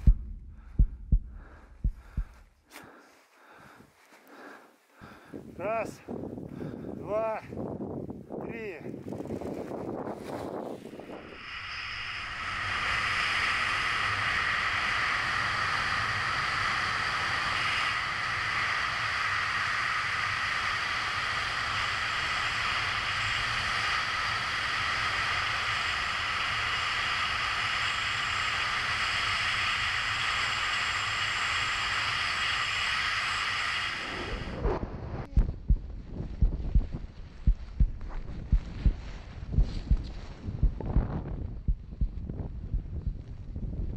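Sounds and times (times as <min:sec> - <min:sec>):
wind rushing over camera: 0:00.0 - 0:03.0, 0:03.6 - 0:43.9
steady high hums: 0:00.0 - 0:06.0, 0:10.9 - 0:39.7.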